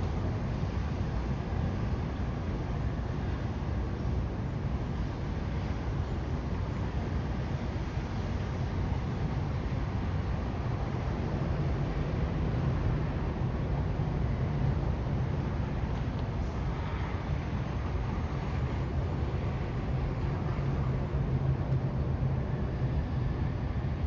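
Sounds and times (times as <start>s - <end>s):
urban rumble: 0.0s - 24.0s.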